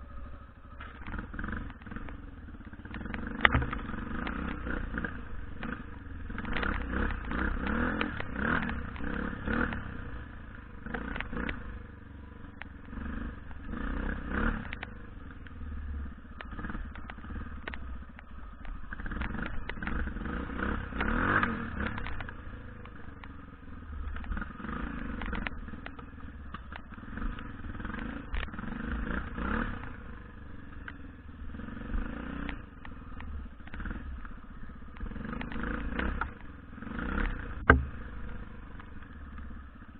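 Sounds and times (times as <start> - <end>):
knocks and clatter from bike: 0.6 - 15.6, 16.2 - 30.0, 30.6 - 39.9
dirt bike engine revving: 2.8 - 11.7, 12.9 - 15.0, 18.8 - 23.1, 24.0 - 39.9.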